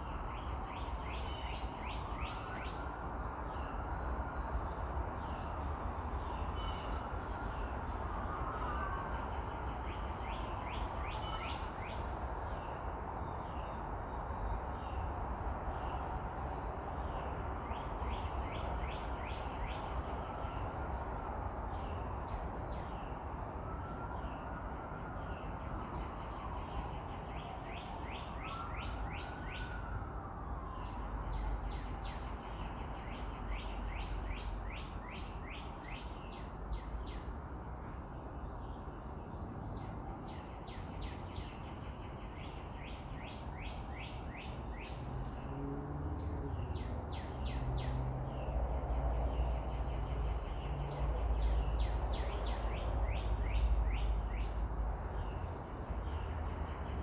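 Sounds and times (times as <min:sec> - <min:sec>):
bird chirping: 0:00.0 - 0:15.0, 0:30.8 - 0:45.4
car road and engine rumble: 0:14.7 - 0:57.0.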